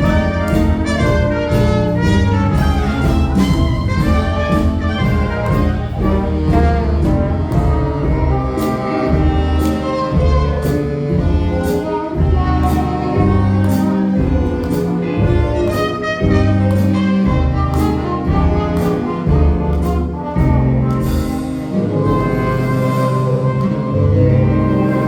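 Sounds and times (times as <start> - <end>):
live jazz band: 0.0 - 25.0.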